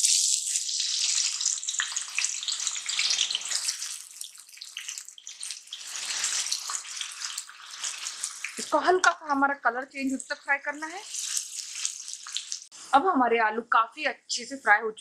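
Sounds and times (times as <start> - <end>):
potatoes frying in hot oil: 0.0 - 9.2, 9.9 - 12.7.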